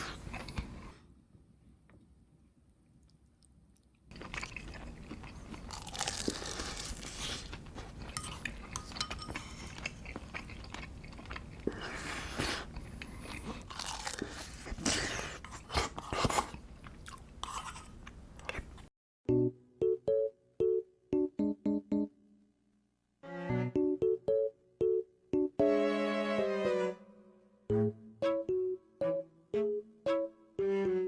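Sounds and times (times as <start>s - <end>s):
person chewing food: 0.0s - 1.0s, 2.9s - 18.9s.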